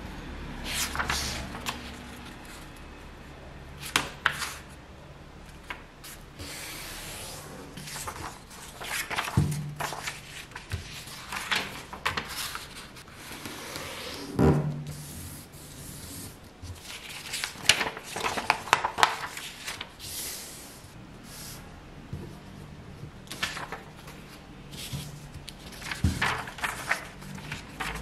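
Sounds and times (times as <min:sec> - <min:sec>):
paper rustling and crinkling: 0:00.7 - 0:02.6, 0:07.7 - 0:13.6, 0:16.4 - 0:20.2, 0:23.2 - 0:28.0.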